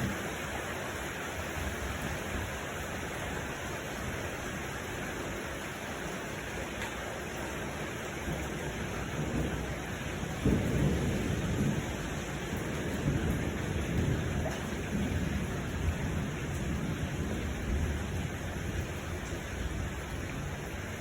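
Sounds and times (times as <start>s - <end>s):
steady rain: 0.0s - 21.0s
thunder rumbling: 8.2s - 21.0s.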